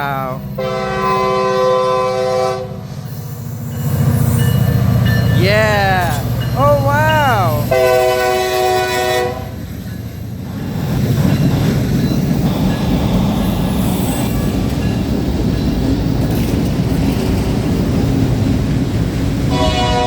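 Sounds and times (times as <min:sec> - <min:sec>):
locomotive air horn chord: 0:00.6 - 0:02.8, 0:07.6 - 0:09.5, 0:19.5 - 0:20.0
train wheels rumbling on rail: 0:06.0 - 0:20.0.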